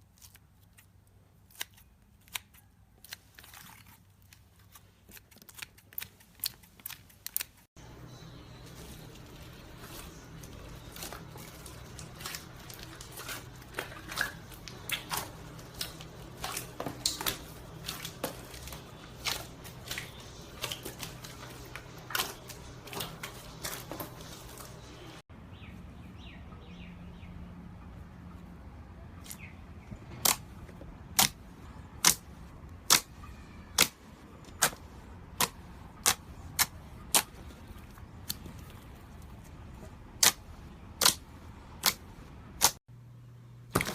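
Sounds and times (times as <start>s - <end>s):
slime clicking and crackling: 32.0s - 39.3s, 40.2s - 42.8s.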